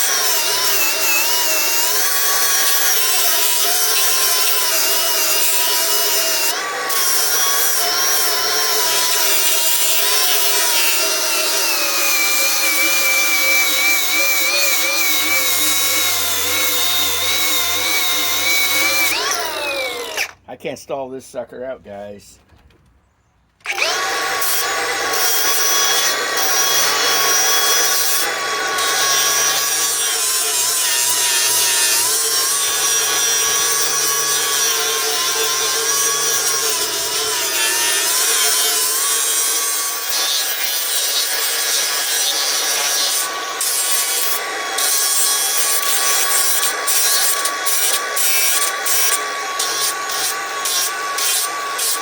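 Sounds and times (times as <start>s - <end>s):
angle grinder motor whine: 0.0s - 20.4s, 23.6s - 52.0s
grinding wheel scraping metal: 0.0s - 20.4s.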